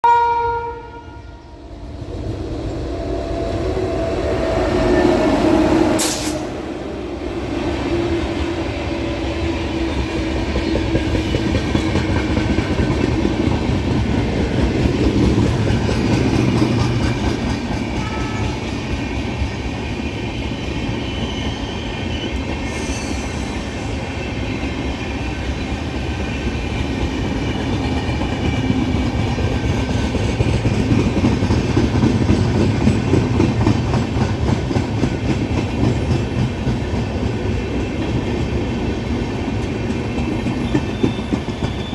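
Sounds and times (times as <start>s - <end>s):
locomotive horn: 0.0s - 1.6s, 18.0s - 18.8s
train passing with rumble: 0.5s - 41.9s
wheels rumbling and rattling on track: 1.7s - 21.3s, 22.4s - 41.9s.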